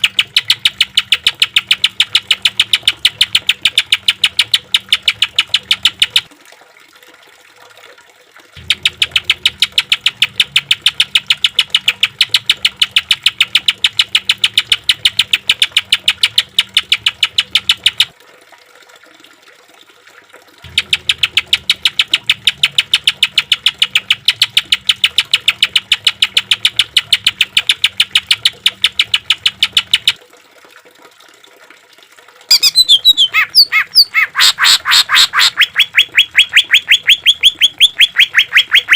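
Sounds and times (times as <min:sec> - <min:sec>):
bird song with sweeping pitch: 0:32.5 - 0:38.9.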